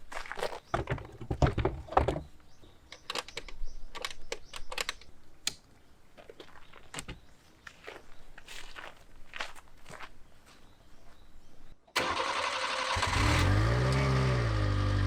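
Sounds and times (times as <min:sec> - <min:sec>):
sharp clicks and knocks: 0:02.9 - 0:05.6.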